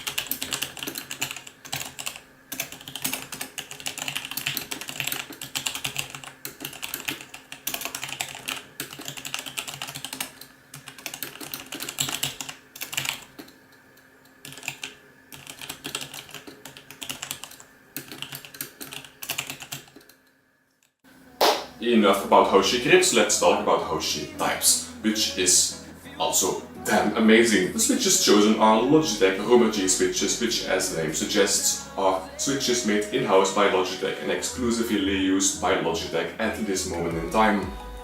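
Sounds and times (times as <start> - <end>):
fast typing on mechanical keyboard: 0.0 - 13.6, 14.4 - 20.2.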